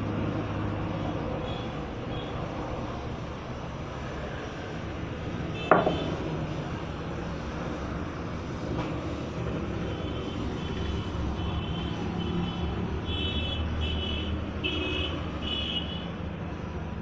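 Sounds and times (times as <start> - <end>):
motor vehicle rumbling: 0.0 - 10.0.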